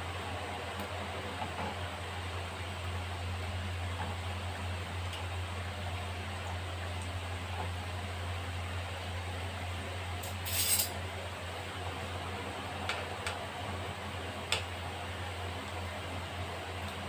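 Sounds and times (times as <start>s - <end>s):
utensils clinking on frying pan: 10.2s - 11.0s.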